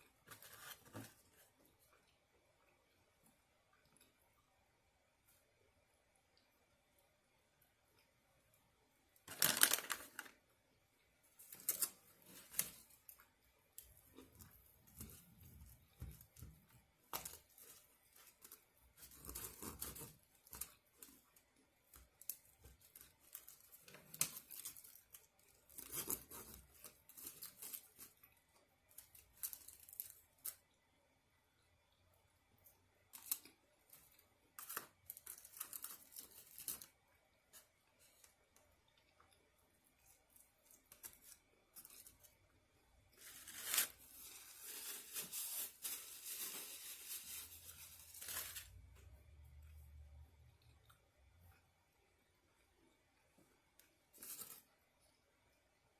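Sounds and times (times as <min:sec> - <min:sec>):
food rustling and tearing: 0:09.3 - 0:10.4, 0:11.4 - 0:30.7, 0:33.1 - 0:38.4, 0:39.9 - 0:49.2.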